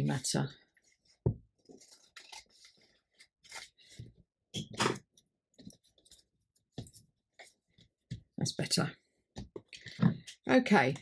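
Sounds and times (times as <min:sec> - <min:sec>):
paper being cut and rustled: 0:01.6 - 0:04.0.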